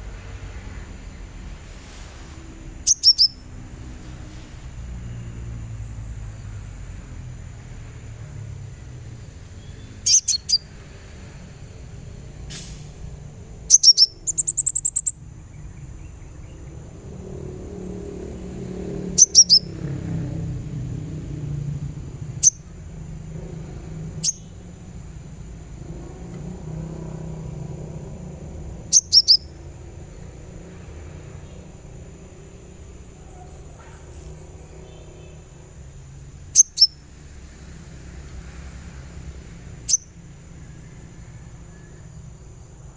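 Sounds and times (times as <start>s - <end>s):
sunbird high chirps: 0.0s - 42.9s.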